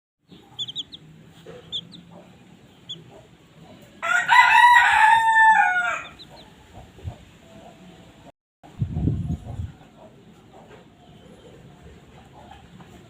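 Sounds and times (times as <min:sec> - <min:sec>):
chicks peeping: 0:00.3 - 0:04.0, 0:06.0 - 0:07.9, 0:08.8 - 0:13.0
rooster crowing: 0:04.0 - 0:06.4.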